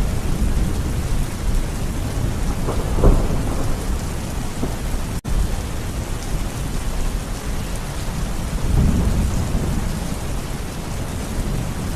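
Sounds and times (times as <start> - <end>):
rolling thunder rumble: 0.0 - 7.5, 8.4 - 11.9
steady rain falling: 0.0 - 11.9.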